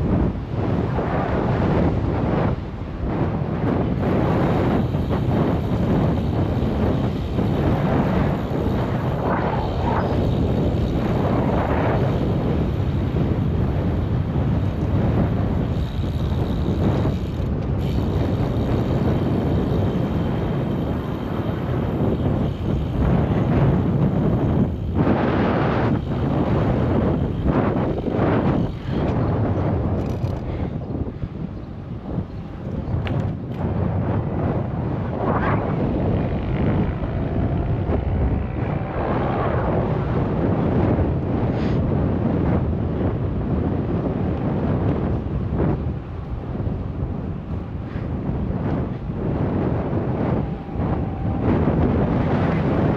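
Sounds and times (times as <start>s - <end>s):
bicycle rolling noise: 0.0s - 52.9s
wind buffeting microphone: 0.0s - 52.9s.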